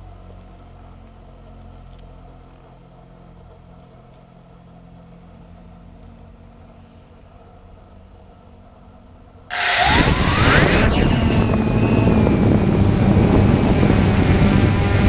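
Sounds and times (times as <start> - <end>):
aircraft engine and propeller drone: 9.5 - 15.0.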